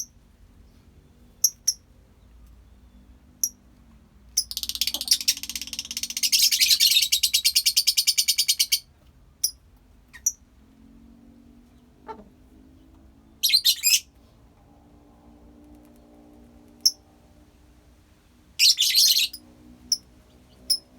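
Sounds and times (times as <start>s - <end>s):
lovebirds chattering: 4.4s - 10.4s.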